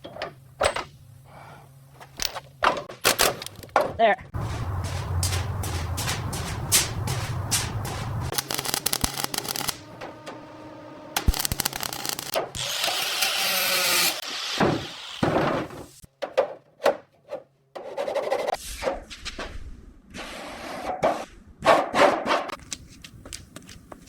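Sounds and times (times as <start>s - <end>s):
rhythmic rubbing strokes: 4.4s - 12.4s
thuds: 14.6s - 16.5s.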